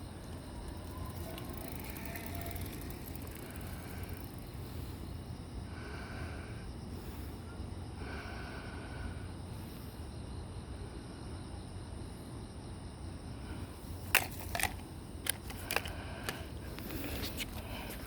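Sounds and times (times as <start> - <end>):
faint cricket chorus: 0.0 - 18.0.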